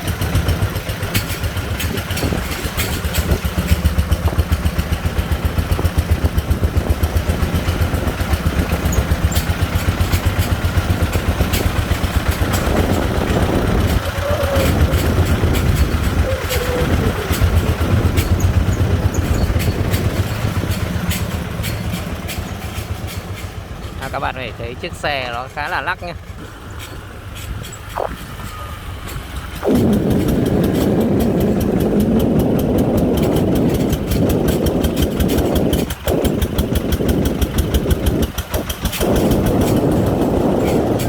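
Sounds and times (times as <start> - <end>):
diesel engine chugging: 0.0 - 41.0.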